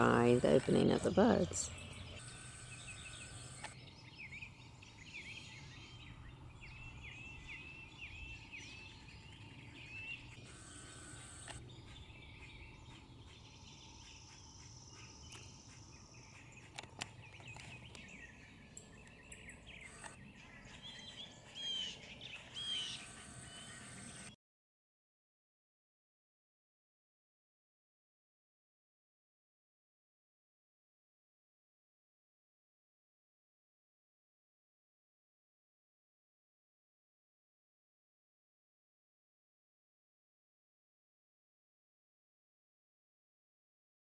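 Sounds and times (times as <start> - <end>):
birds chirping and singing: 0.0 - 24.3.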